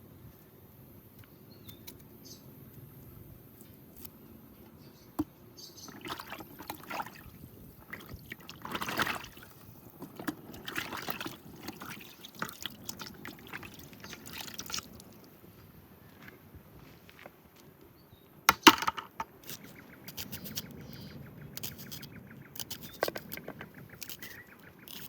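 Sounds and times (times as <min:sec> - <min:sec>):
water pouring and sloshing: 0:05.8 - 0:15.6
clicks and knocks: 0:18.5 - 0:19.3.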